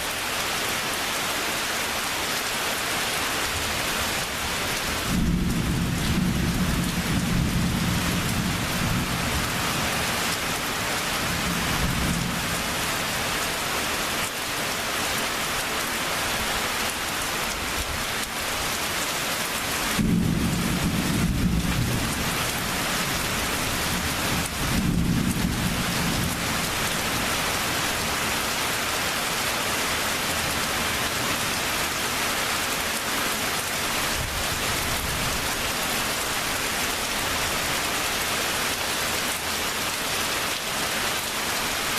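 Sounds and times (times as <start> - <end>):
heavy rain: 0.0 - 41.9
thunder rumbling: 5.0 - 10.2, 20.0 - 26.7.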